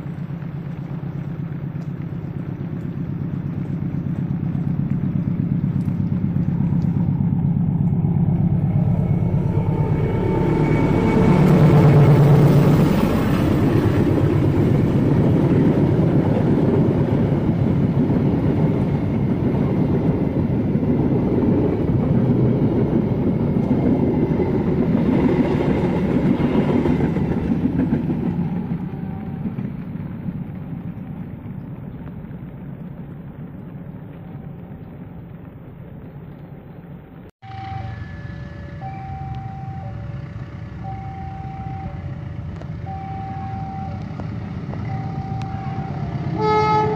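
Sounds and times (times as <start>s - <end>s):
diesel train passing: 0.0s - 46.9s
level crossing alarm: 37.4s - 46.9s.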